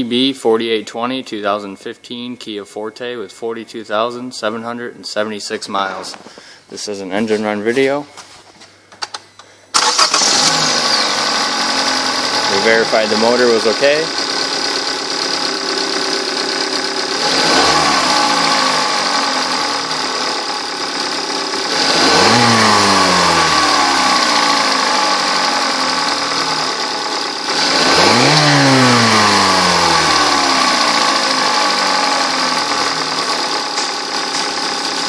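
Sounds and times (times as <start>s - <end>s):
car engine idling and revving: 9.8s - 35.0s.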